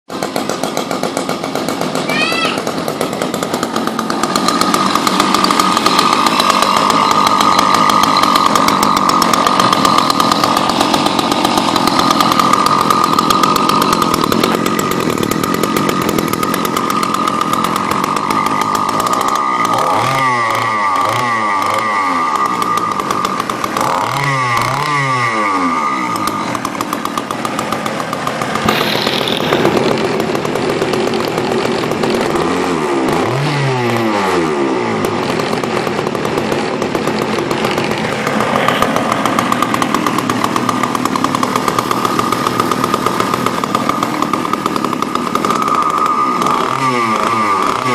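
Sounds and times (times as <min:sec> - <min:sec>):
small two-stroke engine revving: 0:00.1 - 0:47.9.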